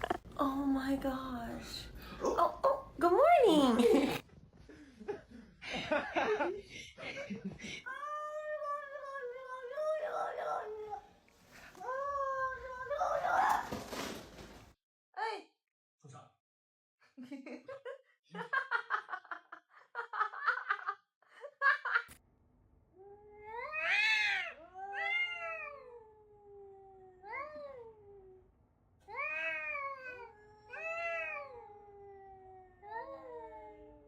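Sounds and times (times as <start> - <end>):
cat meowing: 23.4 - 27.8.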